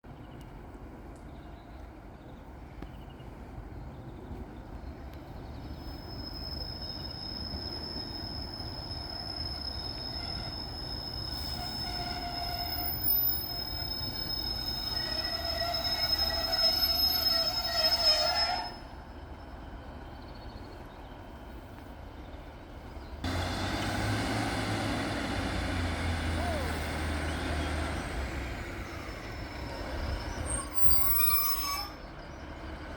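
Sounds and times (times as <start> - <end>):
train rumbling on rails: 0.1 - 32.9
train wheel squeal: 5.4 - 19.1, 26.0 - 32.9
diesel engine rumble: 18.7 - 32.9.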